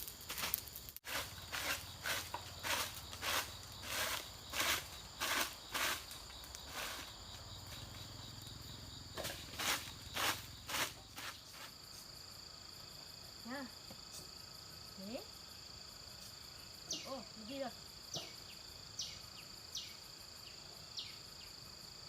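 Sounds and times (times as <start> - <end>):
footsteps: 0.0 - 8.0, 9.2 - 11.8
high insect drone: 0.0 - 22.0.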